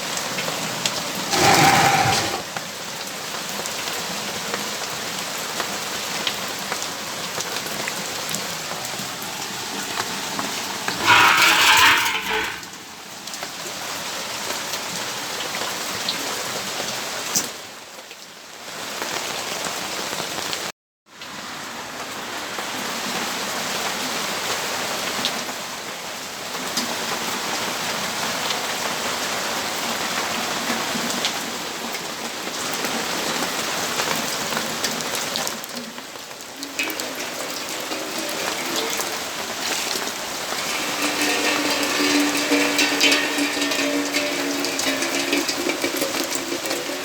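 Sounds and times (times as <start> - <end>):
steady rainfall: 0.0 - 12.8, 13.8 - 47.0
sharp water drips: 36.2 - 47.0.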